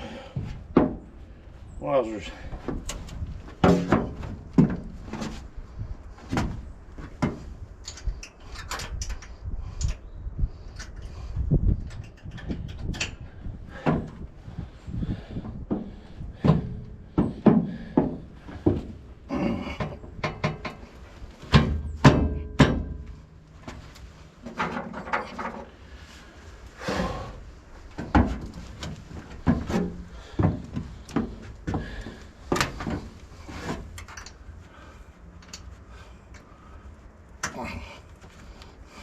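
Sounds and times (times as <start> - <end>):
steel parts clanking and knocking: 24.4 - 25.7.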